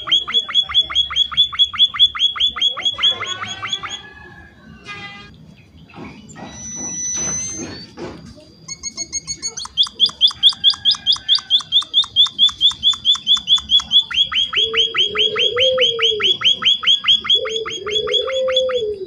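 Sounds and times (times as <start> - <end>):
finch short high chirps: 8.8 - 14.3.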